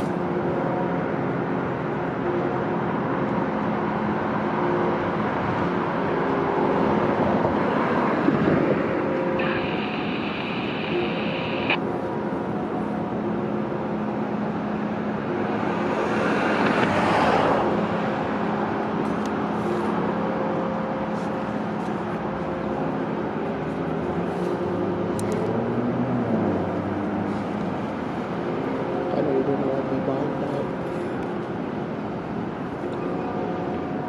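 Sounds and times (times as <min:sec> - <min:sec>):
rail vehicles passing: 0:00.0 - 0:34.0
rumble of passing traffic: 0:00.0 - 0:34.0
steady hum: 0:07.6 - 0:15.5
high squeal: 0:09.1 - 0:11.8.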